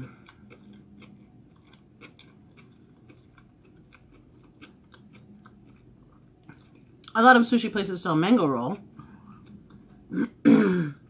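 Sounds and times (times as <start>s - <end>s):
chewing with wet mouth clicks: 0.0s - 7.2s, 8.7s - 10.1s.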